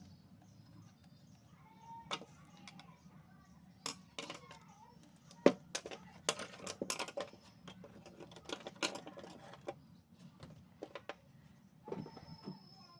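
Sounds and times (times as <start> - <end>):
small hard objects clicking: 5.3 - 9.8.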